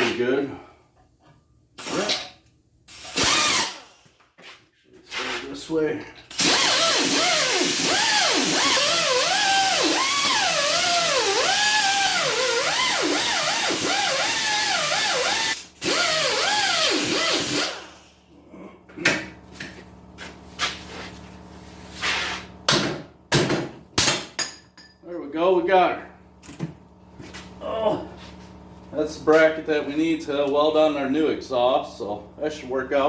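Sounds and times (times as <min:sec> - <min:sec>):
die grinder cutting metal: 0:06.4 - 0:17.8.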